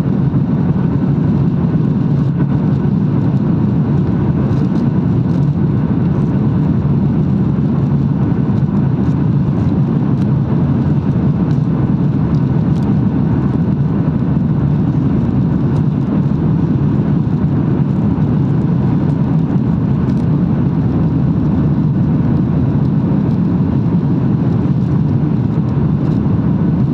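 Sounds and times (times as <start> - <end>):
jet engine cabin rumble: 0.0 - 26.9.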